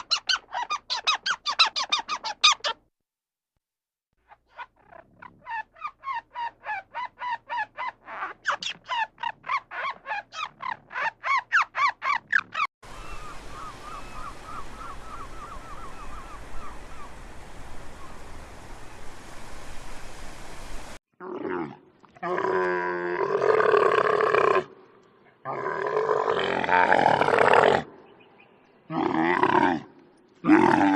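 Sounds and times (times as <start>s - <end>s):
high squeaky animal calls: 0.0s - 2.8s, 4.5s - 13.2s
steady hiss: 12.9s - 21.0s.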